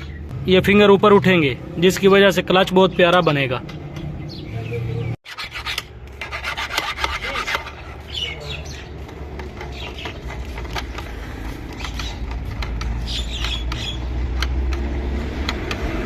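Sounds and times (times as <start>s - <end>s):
hand tools scraping on metal: 5.3s - 8.4s.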